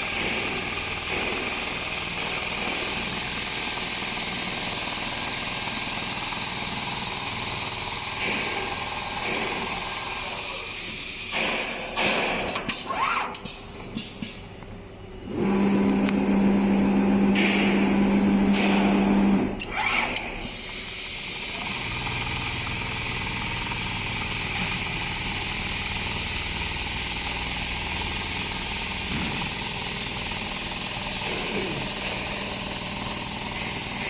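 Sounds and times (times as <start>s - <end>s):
sewing machine hum: 0.0s - 10.7s, 21.1s - 34.0s
machine hiss: 0.0s - 12.4s, 20.4s - 34.0s.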